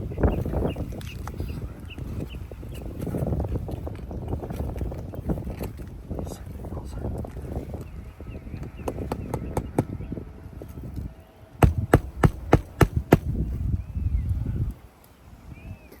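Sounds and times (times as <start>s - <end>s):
hammer striking roof: 11.6s - 13.4s.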